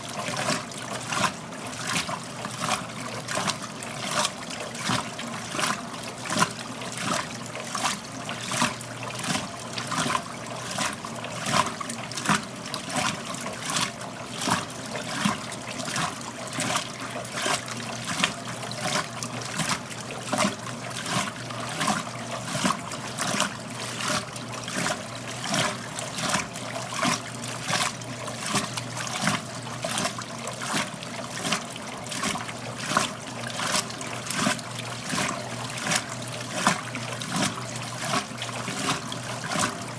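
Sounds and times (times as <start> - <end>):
water splashing in washing machine drum: 0.0 - 39.9.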